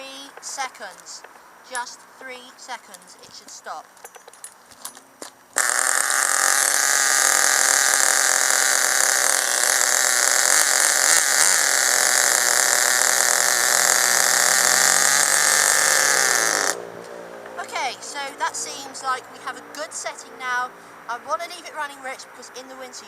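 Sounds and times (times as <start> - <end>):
nitro engine running: 5.6 - 19.6.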